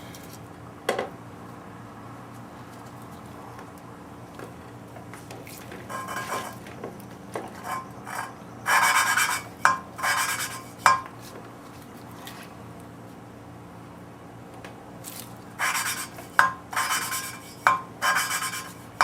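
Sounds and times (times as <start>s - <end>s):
gritty scraping of valve lapping: 5.4s - 6.7s, 7.4s - 11.1s, 15.1s - 19.0s.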